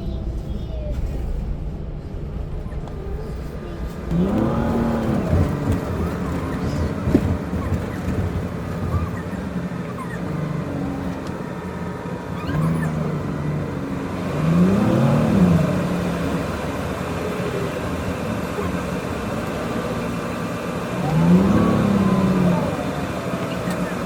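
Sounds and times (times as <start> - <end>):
bus engine and drivetrain: 0.0 - 24.0.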